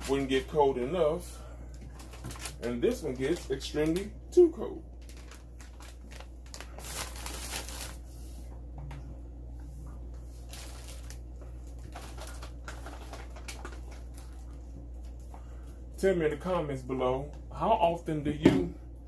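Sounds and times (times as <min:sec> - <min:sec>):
items rustling and crinkling: 0:00.0 - 0:04.1, 0:04.9 - 0:09.0, 0:09.6 - 0:15.8
steady low hum: 0:00.0 - 0:19.0.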